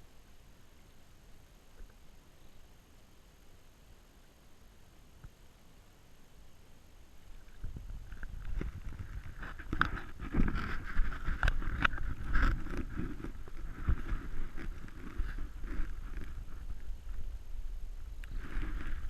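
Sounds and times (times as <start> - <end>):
low microphone rumble: 7.2 - 19.0.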